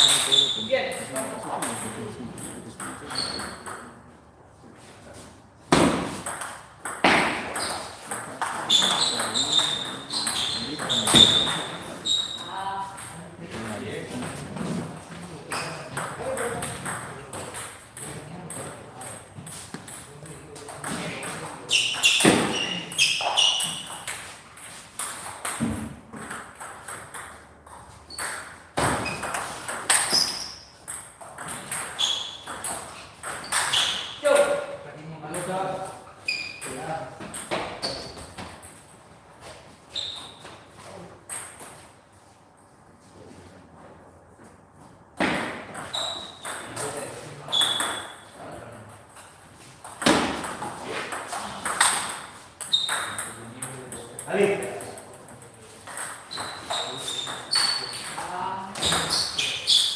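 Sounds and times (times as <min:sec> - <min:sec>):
table tennis ball hits: 0:05.7 - 0:11.9, 0:20.6 - 0:27.4, 0:28.1 - 0:34.6, 0:45.2 - 0:47.0, 0:49.8 - 0:55.0.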